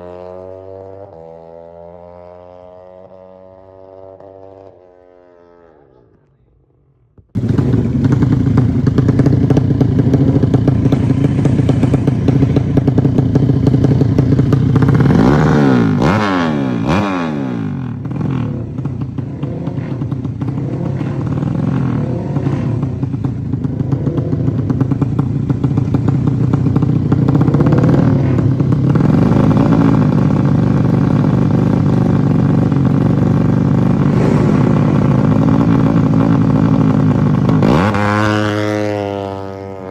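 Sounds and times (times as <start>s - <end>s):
motorcycle engine revving: 0.0s - 6.3s, 7.4s - 39.9s.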